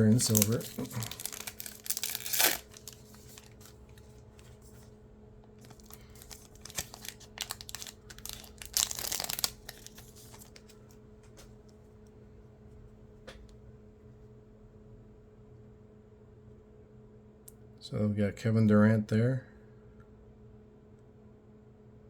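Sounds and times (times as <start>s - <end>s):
plastic wrapper crinkling: 0.0s - 4.8s, 5.6s - 10.9s
faint steady hum: 0.0s - 22.0s.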